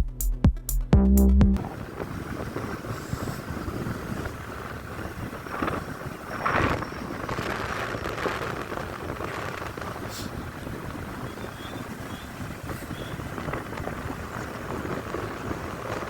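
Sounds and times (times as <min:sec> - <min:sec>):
heavy rain: 0:01.6 - 0:05.6
wind buffeting microphone: 0:01.6 - 0:16.0.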